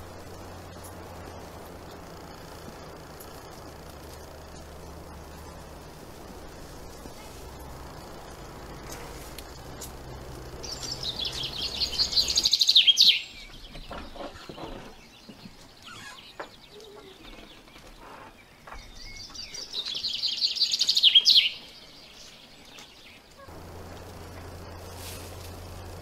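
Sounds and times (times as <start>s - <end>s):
songbird trilling: 4.5s - 14.6s, 19.0s - 22.2s.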